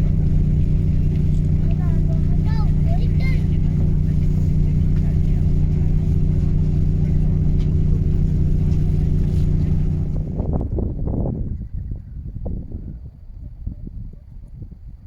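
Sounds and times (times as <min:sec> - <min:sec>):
motor droning: 0:00.0 - 0:11.1.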